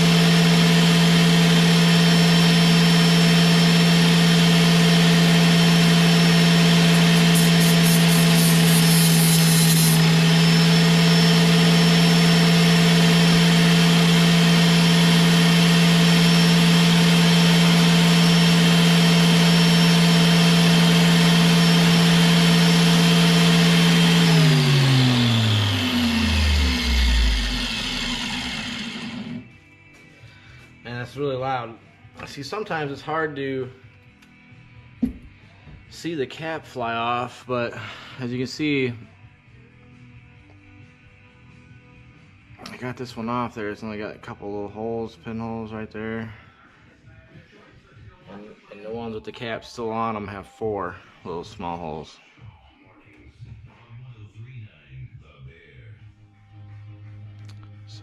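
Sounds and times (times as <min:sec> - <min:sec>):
grinder spinning down: 0:00.0 - 0:29.5
grinder running: 0:00.0 - 0:29.6.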